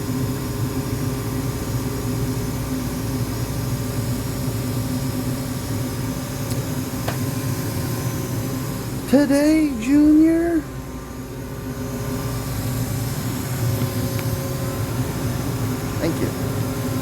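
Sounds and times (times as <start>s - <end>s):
furnace blower humming: 0.0s - 17.0s.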